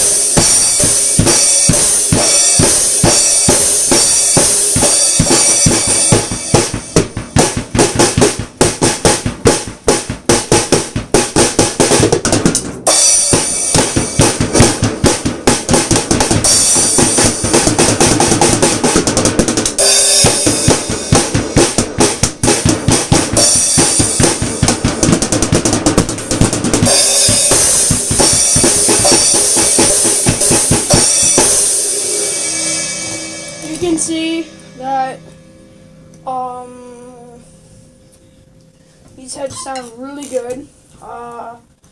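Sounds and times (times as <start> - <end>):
cymbals: 0.0 - 10.8, 12.8 - 25.1, 26.2 - 40.2
drum kit beat: 0.0 - 40.2.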